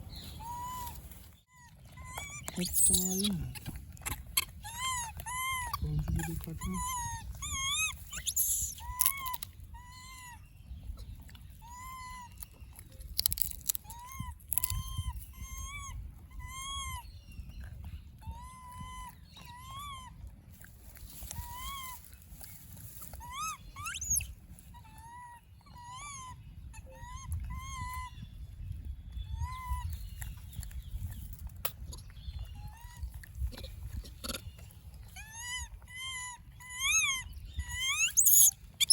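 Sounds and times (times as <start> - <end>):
baby monkey squeaky cries: 0.1 - 1.0, 1.6 - 10.5, 11.6 - 12.6, 13.2 - 17.2, 18.2 - 20.2, 23.0 - 28.2, 29.3 - 30.0, 31.9 - 34.4, 35.0 - 38.9.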